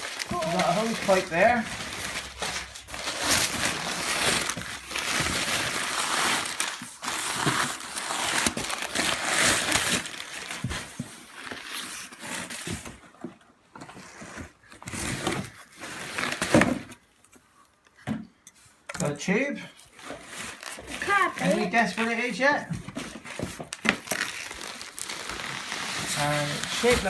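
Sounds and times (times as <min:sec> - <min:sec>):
packing material crumpling: 0:00.0 - 0:12.6, 0:19.9 - 0:22.4, 0:23.2 - 0:27.0.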